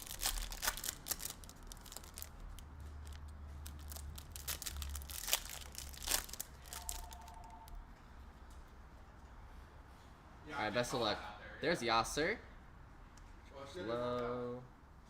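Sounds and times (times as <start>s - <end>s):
card packs torn open: 0.0s - 7.8s
wrapper crinkling: 0.0s - 7.8s
two-note beeping: 6.7s - 7.8s.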